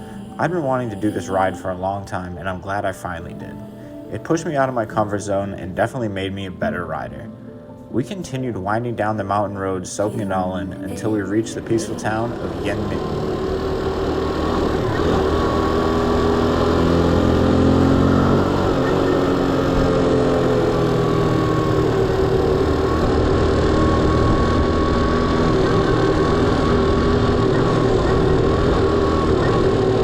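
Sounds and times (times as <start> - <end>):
motorbike engine running: 12.0 - 30.0.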